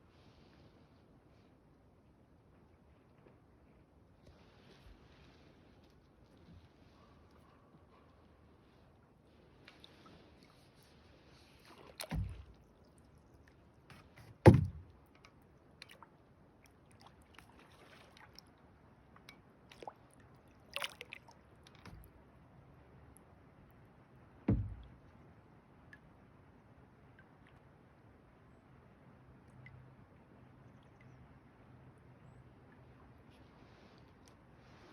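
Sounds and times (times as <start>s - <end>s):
sharp knock or splash: 12.0s - 12.5s, 13.9s - 14.9s, 24.5s - 24.9s
hollow thumps on kayak hull: 12.0s - 12.6s, 13.9s - 15.0s, 24.4s - 25.1s.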